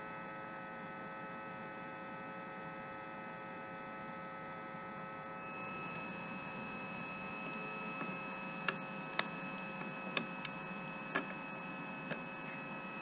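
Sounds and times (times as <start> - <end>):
electrical hum: 3.8 - 13.0
sharp light clicks: 7.4 - 11.4.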